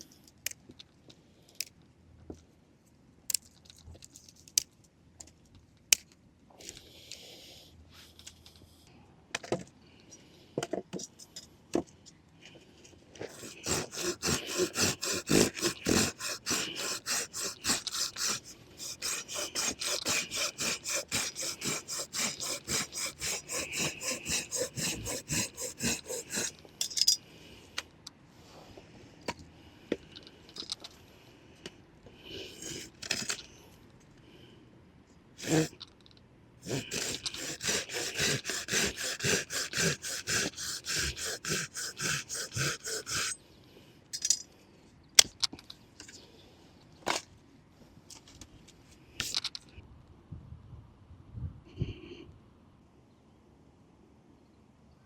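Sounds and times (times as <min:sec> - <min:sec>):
hand saw cutting wood: 0:13.2 - 0:26.7, 0:32.5 - 0:33.4, 0:35.4 - 0:35.8, 0:36.6 - 0:43.4.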